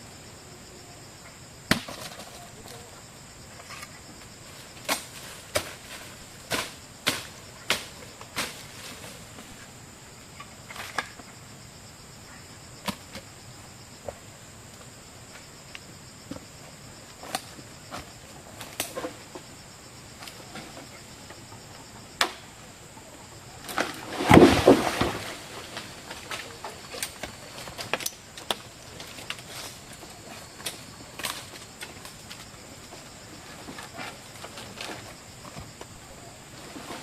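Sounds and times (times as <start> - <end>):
rustling crash: 23.7 - 28.0.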